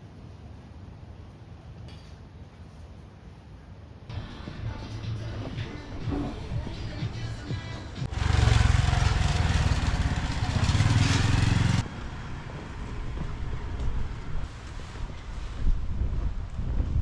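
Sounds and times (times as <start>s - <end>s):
outdoor background: 0.0s - 17.0s
motorbike engine running: 8.0s - 13.7s.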